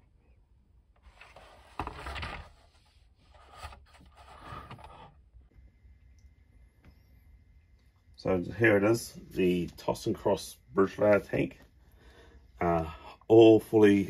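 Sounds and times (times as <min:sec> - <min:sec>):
plastic parts scraping: 0:01.0 - 0:05.2.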